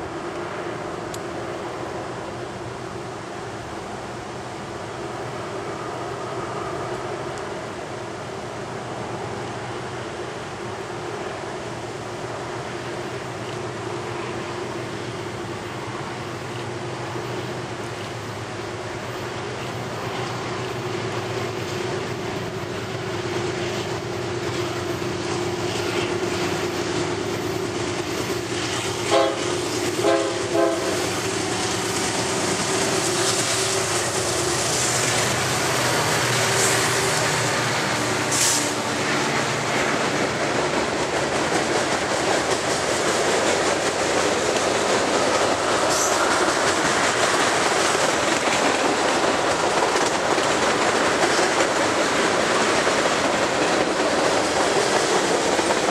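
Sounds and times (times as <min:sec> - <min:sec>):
diesel locomotive engines: 0:00.0 - 0:55.9
train wheels clattering on rails: 0:12.2 - 0:55.9
train horn blasts: 0:29.0 - 0:31.2.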